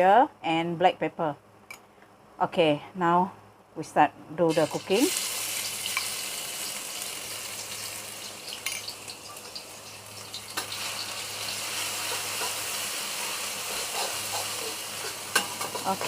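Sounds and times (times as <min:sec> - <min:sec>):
paste sizzling in a pan: 0:04.5 - 0:16.0.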